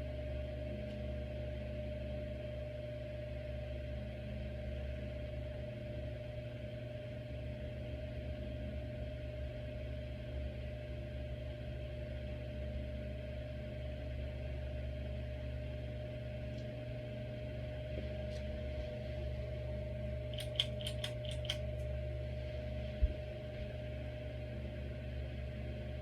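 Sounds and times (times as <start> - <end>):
ceiling fan motor hum: 0.0 - 26.0
light ticks: 20.3 - 21.9.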